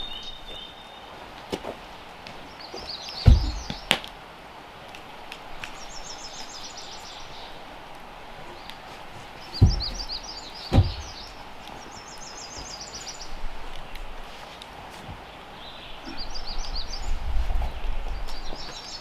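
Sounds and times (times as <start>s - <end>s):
outdoor background noise: 0.0s - 19.0s
dull thumps: 2.8s - 4.2s, 8.4s - 13.6s.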